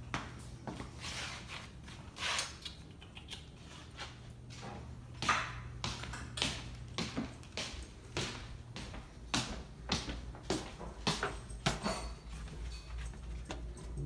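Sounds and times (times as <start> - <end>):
steady low hum: 4.1 - 14.0.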